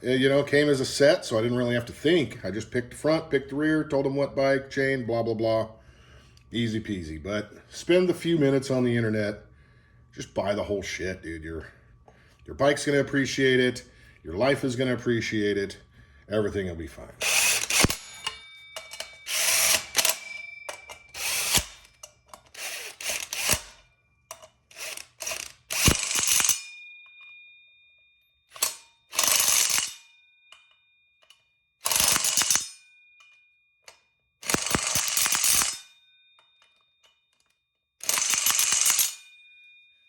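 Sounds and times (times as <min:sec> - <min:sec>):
socket ratchet clicking: 0:17.2 - 0:26.7, 0:28.5 - 0:35.9, 0:36.6 - 0:39.2.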